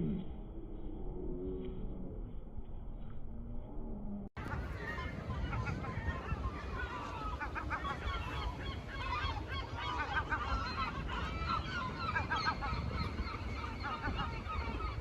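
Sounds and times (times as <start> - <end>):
low steady rumble: 0.0 - 15.0
flock of birds calling: 4.4 - 15.0.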